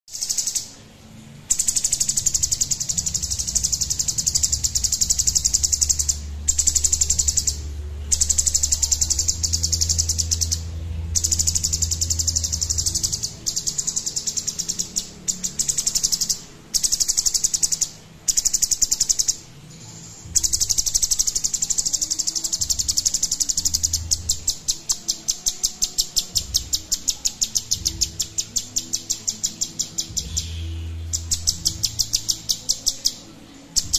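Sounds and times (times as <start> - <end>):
bulbul singing: 0.1 - 33.9
low hum: 0.7 - 18.5.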